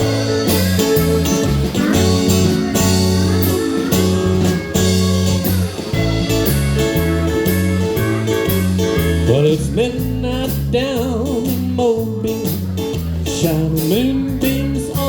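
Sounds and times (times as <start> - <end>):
lead guitar solo: 0.0 - 9.8
bass: 0.0 - 15.0
steady drum beat: 0.0 - 15.0.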